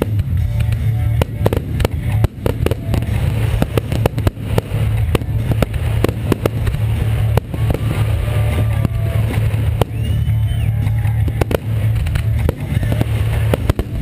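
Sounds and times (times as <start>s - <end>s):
deep rumble: 0.0s - 14.0s
fireworks bangs: 0.0s - 14.0s.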